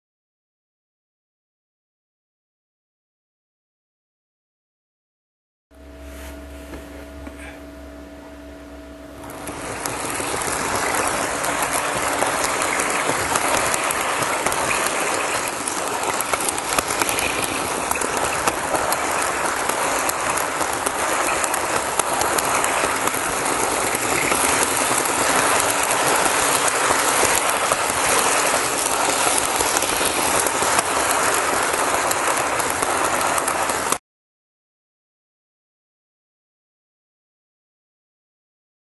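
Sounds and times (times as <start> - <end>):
model train whirring and rattling: 9.0 - 34.0.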